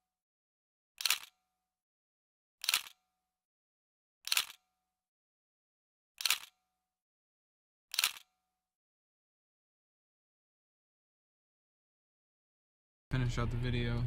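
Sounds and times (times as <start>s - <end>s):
camera shutter clicks: 4.3s - 4.6s, 6.2s - 6.5s, 7.9s - 8.3s.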